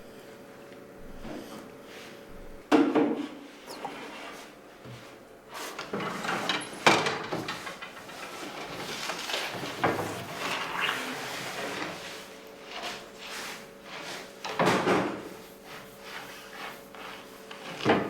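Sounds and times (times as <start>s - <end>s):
scraping and sliding: 7.4s - 18.0s.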